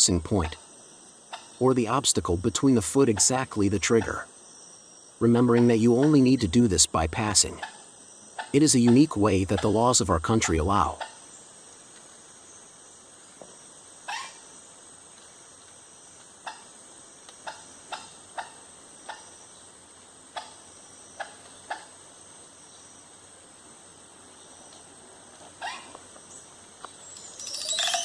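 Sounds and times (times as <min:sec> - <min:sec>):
high-pitched insect drone: 0:27.0 - 0:28.0
sharp animal calls: 0:27.0 - 0:28.0.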